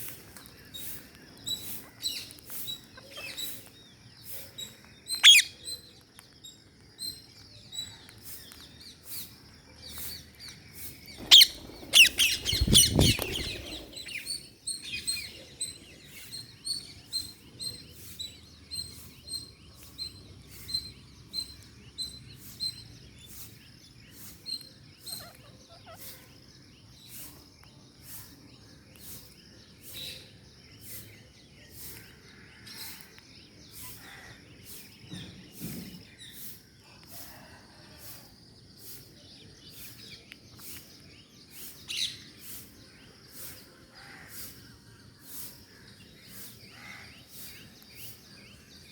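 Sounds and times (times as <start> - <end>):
parakeets chirping: 11.2 - 15.3.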